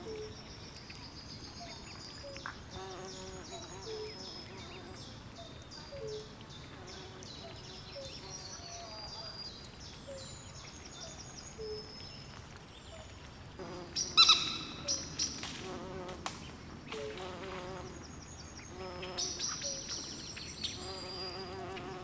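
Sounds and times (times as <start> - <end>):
insects buzzing trills: 1.7 - 8.8, 13.6 - 22.0.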